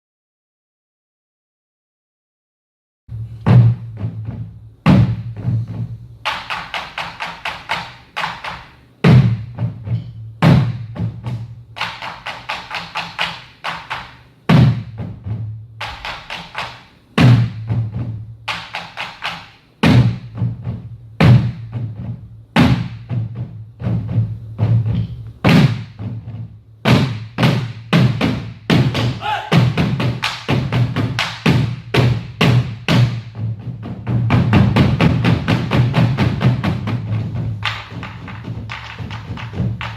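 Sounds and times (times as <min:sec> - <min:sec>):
heavy deep drum strikes: 0:03.1 - 0:07.8, 0:09.0 - 0:11.8, 0:14.5 - 0:16.4, 0:17.2 - 0:18.5, 0:19.8 - 0:39.9.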